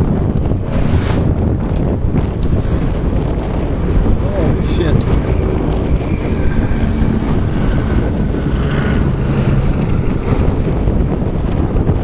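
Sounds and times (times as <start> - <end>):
water rushing along hull: 0.0 - 12.0
wind buffeting microphone: 0.0 - 12.0
faint motor drone: 0.6 - 12.0.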